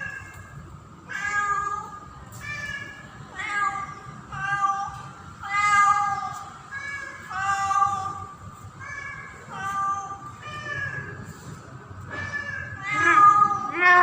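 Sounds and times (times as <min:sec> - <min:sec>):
cat meowing: 0:12.2 - 0:14.0.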